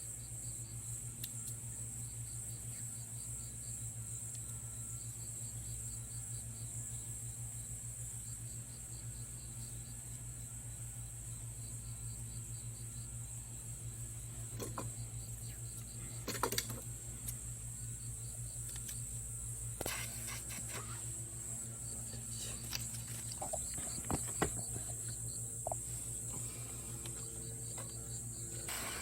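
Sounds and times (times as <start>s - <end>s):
low hum: 9.8s - 29.0s.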